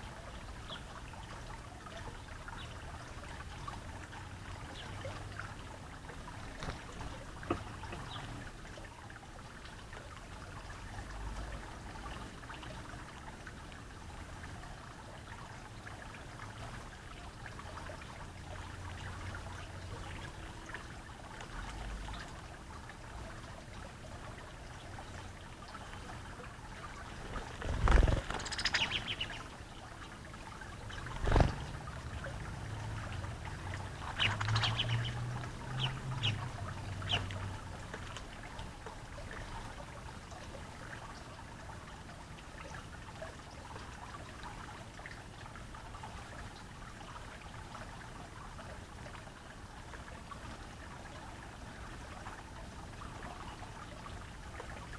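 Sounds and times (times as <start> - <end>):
water trickling: 0.0 - 54.9
bird chirps: 28.4 - 29.4, 34.0 - 37.3.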